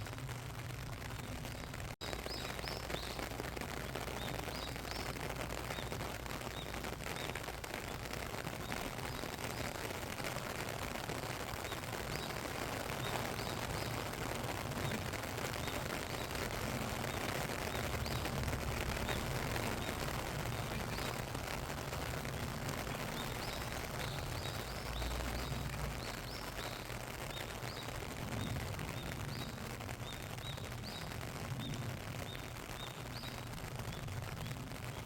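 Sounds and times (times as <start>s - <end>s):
rain pattering: 0.0s - 35.0s
small bird chirping: 1.5s - 7.4s, 22.7s - 34.1s.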